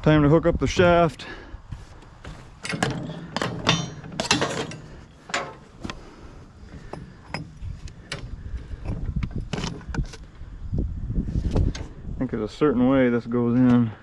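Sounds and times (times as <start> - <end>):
metal driveshaft clanking: 2.2 - 6.0, 6.6 - 10.1.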